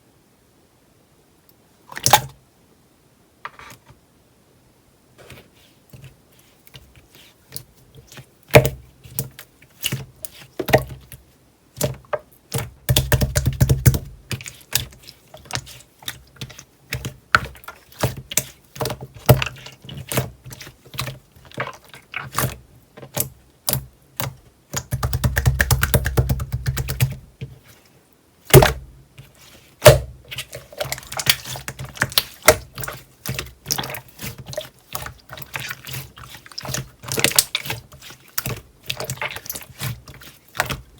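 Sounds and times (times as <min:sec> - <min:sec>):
slime squishing and popping: 0:29.8 - 0:40.0.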